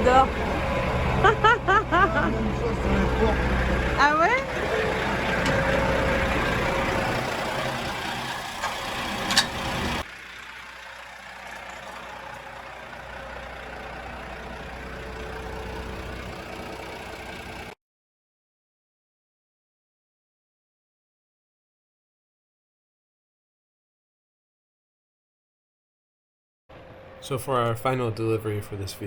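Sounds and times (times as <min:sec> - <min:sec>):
truck engine idling: 0:00.0 - 0:17.8.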